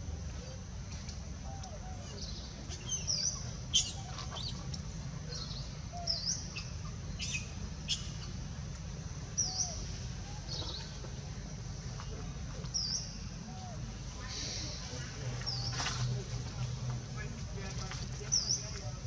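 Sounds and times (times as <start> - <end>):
birds chirping: 1.4 - 8.6.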